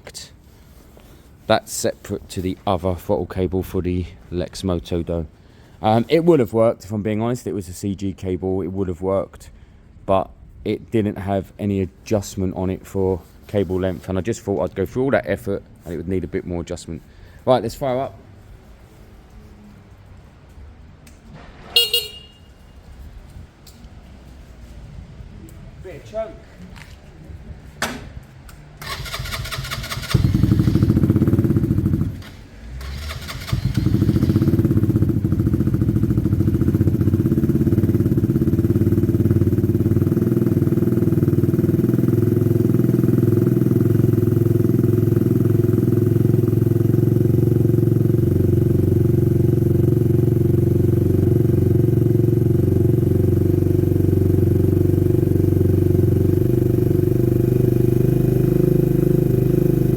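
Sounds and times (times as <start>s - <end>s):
motorcycle engine cranking and idling: 27.7s - 59.9s.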